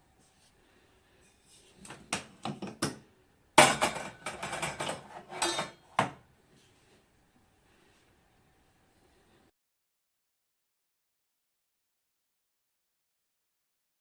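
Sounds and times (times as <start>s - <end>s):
metal clinking and clattering: 3.6s - 5.8s.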